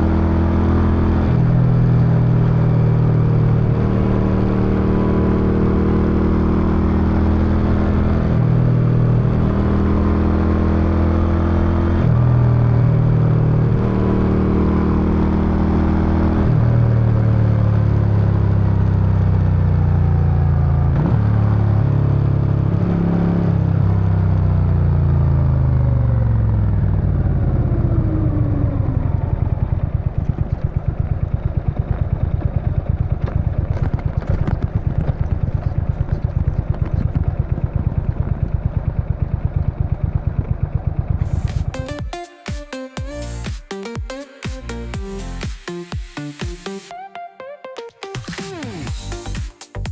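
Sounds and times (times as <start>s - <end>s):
motorcycle v-twin exhaust: 25.9s - 41.5s.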